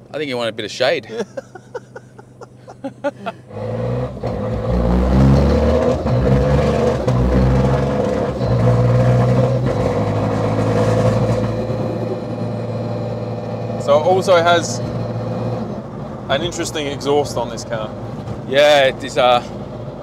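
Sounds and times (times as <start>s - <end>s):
car engine accelerating: 1.5s - 20.0s.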